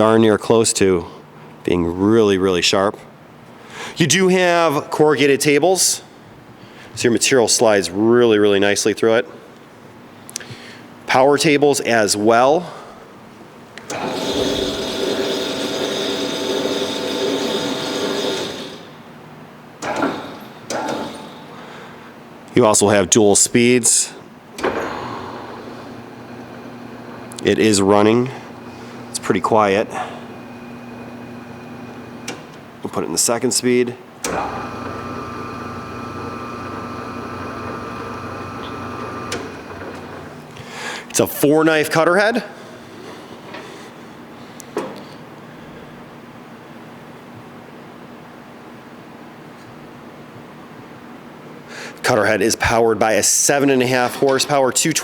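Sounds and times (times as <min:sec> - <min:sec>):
electric motor and gearing whining: 0:13.9 - 0:18.8, 0:34.3 - 0:40.2
planer machine hum: 0:13.9 - 0:18.8, 0:24.6 - 0:27.5, 0:29.8 - 0:32.4, 0:34.2 - 0:40.4.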